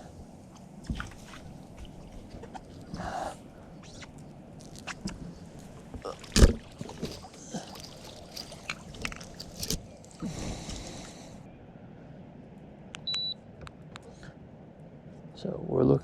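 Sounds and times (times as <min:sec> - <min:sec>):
short watery rush: 0:00.8 - 0:04.1, 0:05.3 - 0:11.4.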